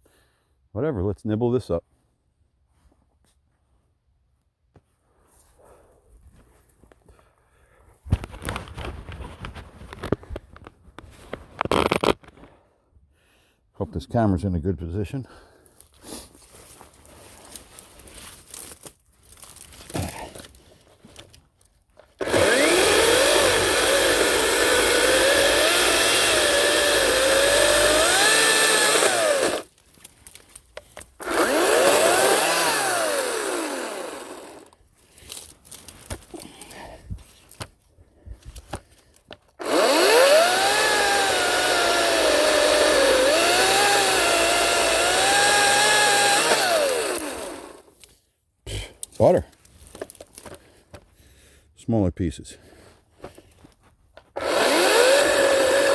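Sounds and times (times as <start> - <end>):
electric chainsaw cutting wood: 22.2 - 29.7, 31.2 - 34.8, 39.6 - 47.9, 54.4 - 55.9.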